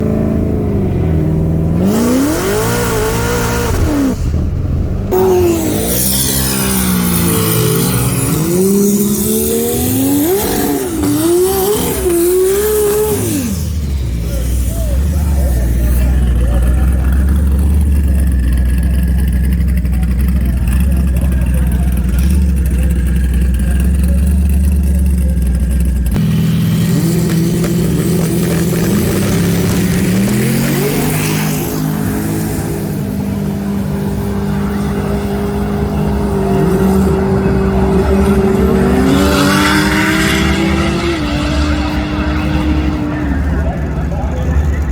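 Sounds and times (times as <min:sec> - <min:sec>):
car engine accelerating hard: 0:00.0 - 0:44.9.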